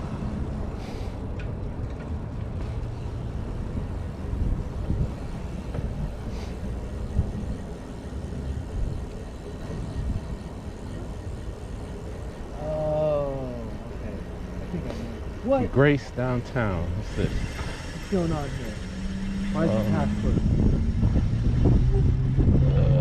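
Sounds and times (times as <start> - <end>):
bicycle road noise: 0.0 - 23.0
wind on microphone: 3.5 - 6.3, 19.9 - 23.0.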